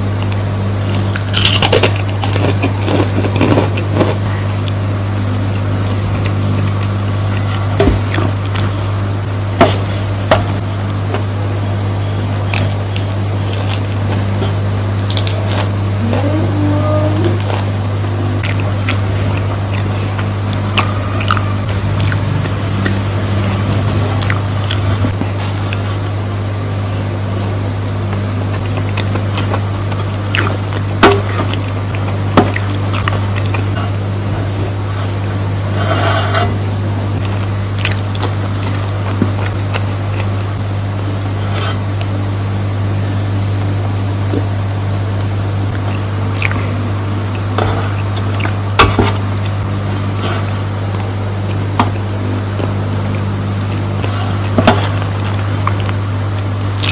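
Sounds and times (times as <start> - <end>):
eating sounds: 0.0 - 11.3, 12.4 - 26.2, 28.1 - 42.2, 45.7 - 56.9
steady low hum: 0.0 - 56.9
wet mouth chewing: 0.2 - 8.9, 18.4 - 26.0, 28.1 - 33.8, 37.2 - 42.2, 45.7 - 56.9
wet mouth smacks: 46.4 - 46.6.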